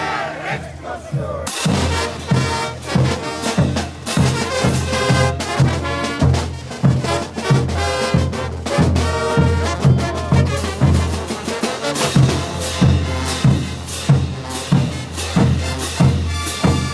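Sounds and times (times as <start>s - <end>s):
bass drum beat: 0.0s - 11.5s
trombones: 0.0s - 16.9s
trumpets: 0.0s - 16.9s.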